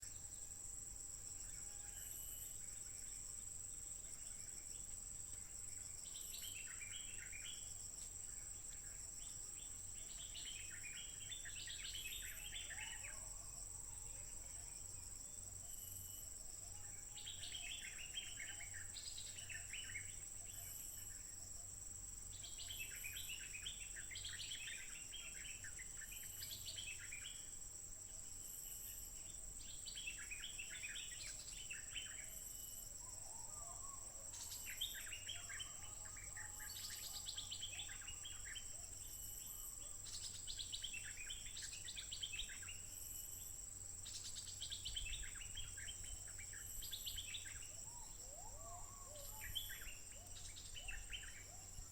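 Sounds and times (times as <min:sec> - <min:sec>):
high-pitched insect drone: 0:28.3 - 0:33.8.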